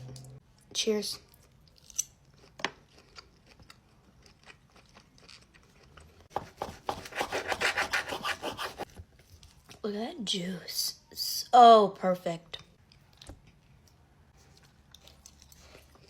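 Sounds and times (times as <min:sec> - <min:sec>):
knife sawing through steak: 0:06.9 - 0:08.8.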